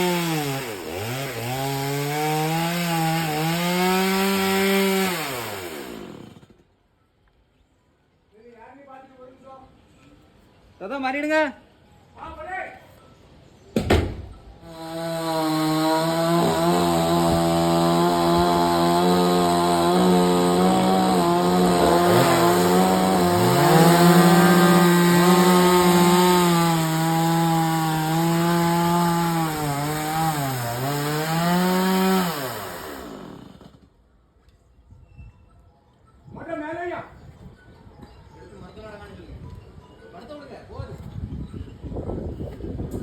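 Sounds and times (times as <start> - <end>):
chainsaw cutting wood: 0.0 - 6.7, 14.6 - 33.9.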